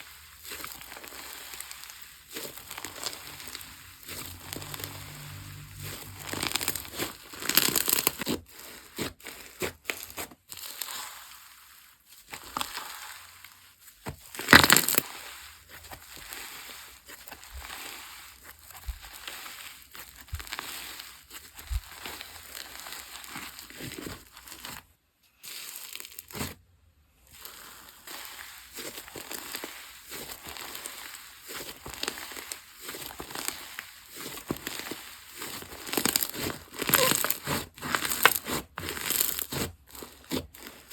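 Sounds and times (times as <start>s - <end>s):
slime squishing and popping: 0.5s - 8.3s, 14.3s - 15.0s, 35.5s - 40.7s.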